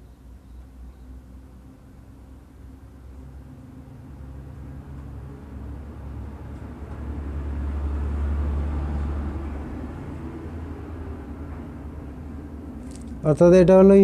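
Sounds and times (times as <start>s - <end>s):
vehicle passing with low rumble: 0.0s - 14.0s.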